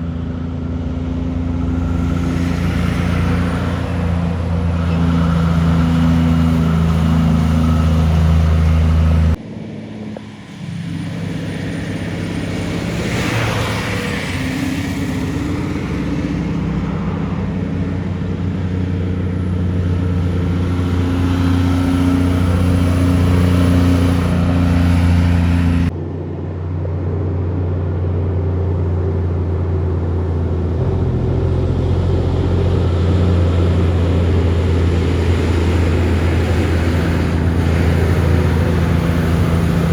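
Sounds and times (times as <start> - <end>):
passing vehicle rush: 0.0 - 27.0, 28.0 - 39.9
truck diesel engines: 0.0 - 39.9.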